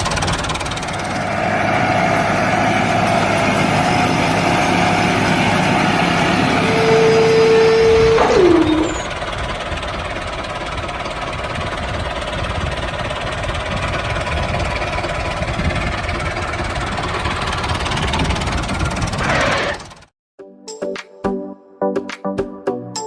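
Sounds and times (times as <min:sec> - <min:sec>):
small engine running: 0:00.0 - 0:20.1
whine sliding down in pitch: 0:05.6 - 0:09.2.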